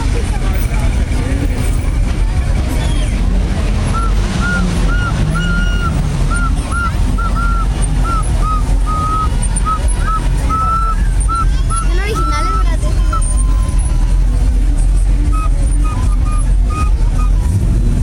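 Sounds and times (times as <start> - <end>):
low rumble of vehicle engines: 0.0 - 18.0
high chirping tones: 2.8 - 14.1.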